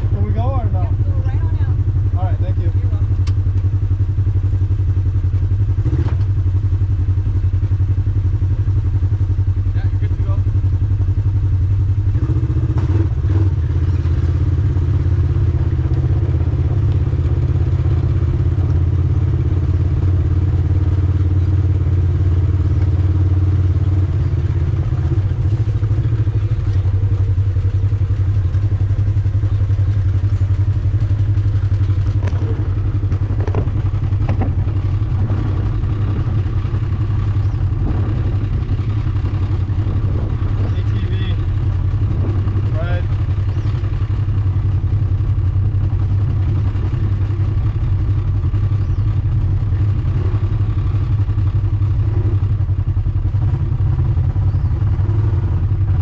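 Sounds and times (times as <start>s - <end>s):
atv engine droning: 0.0s - 56.0s
knocks and rattles: 31.0s - 35.6s.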